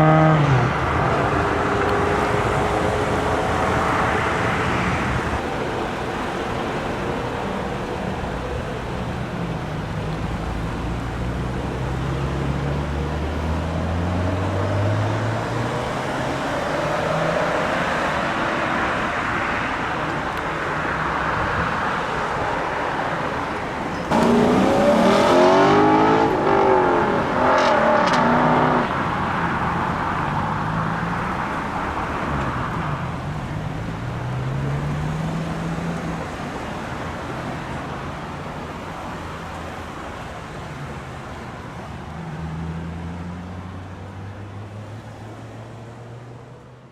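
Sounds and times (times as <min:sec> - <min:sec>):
loud engine revving: 0:00.0 - 0:05.2, 0:24.1 - 0:28.9
car engines running and revving: 0:00.0 - 0:46.9.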